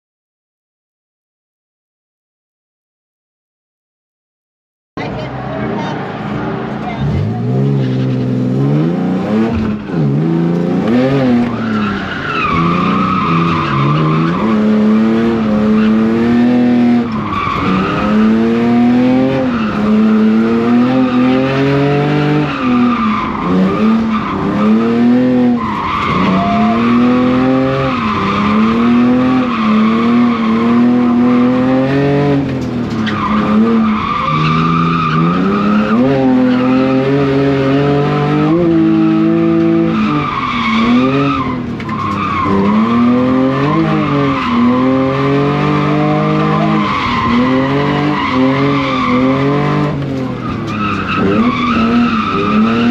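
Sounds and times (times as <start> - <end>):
car engine revving: 5.0 - 52.9
tyres squealing: 22.5 - 31.2, 40.0 - 49.4.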